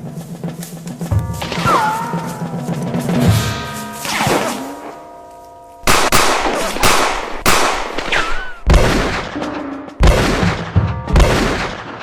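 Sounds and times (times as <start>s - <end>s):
echoing gunshots: 5.8s - 12.0s.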